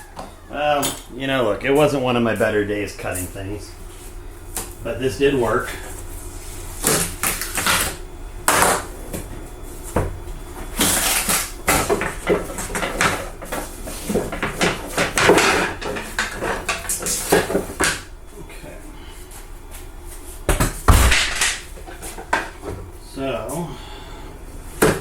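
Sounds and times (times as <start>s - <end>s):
wooden pieces knocking and scraping: 11.2s - 18.0s.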